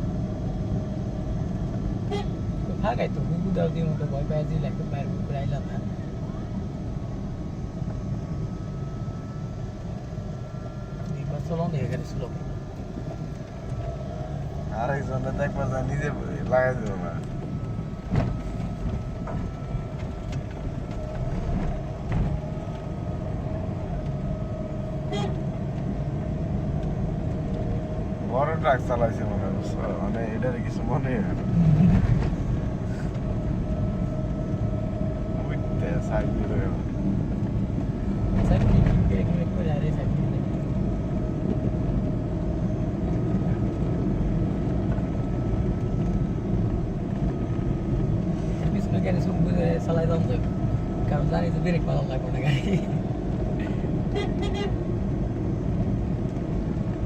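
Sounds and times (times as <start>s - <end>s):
steady whine: 0.0s - 57.0s
truck engine and road rumble: 0.0s - 57.0s.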